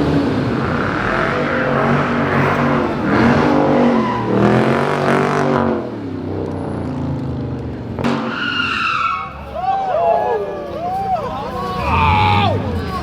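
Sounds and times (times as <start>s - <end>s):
car engine revving: 0.0s - 9.6s, 10.6s - 13.0s.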